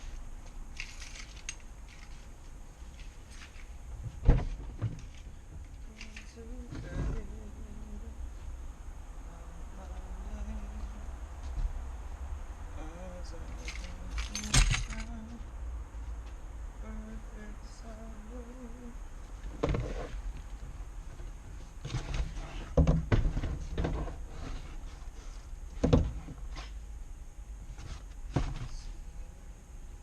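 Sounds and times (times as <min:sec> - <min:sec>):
bicycle parts clunking: 0:13.6 - 0:15.2.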